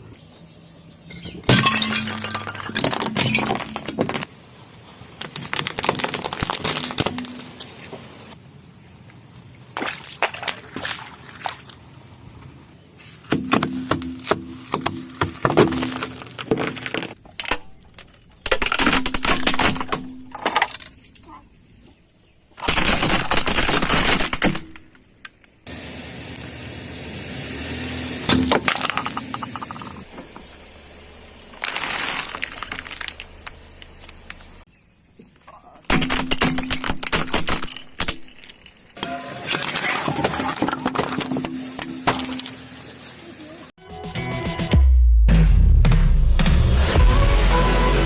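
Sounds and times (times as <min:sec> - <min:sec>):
objects crunching under car tyres: 0:01.5 - 0:08.4, 0:13.0 - 0:21.3, 0:22.5 - 0:25.4, 0:28.0 - 0:42.9.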